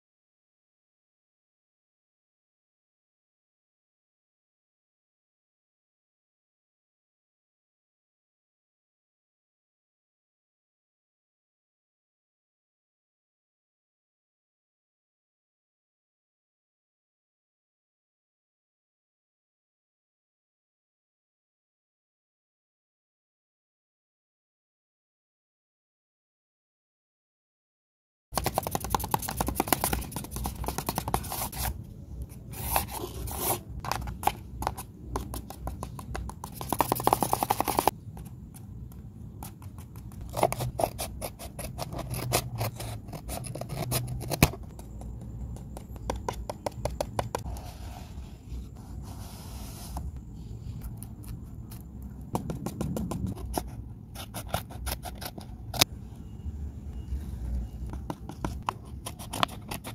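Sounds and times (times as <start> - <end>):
paper rustling and scraping: 28.4 - 31.8, 32.4 - 37.9.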